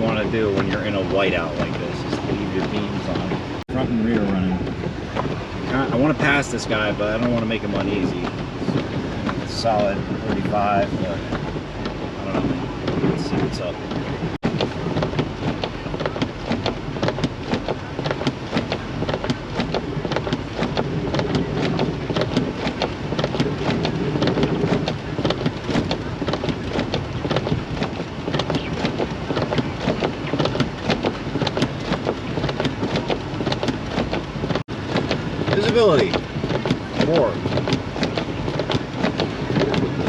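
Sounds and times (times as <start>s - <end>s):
car road and engine drone: 0.0s - 40.0s
snow ticking on car: 0.0s - 40.0s.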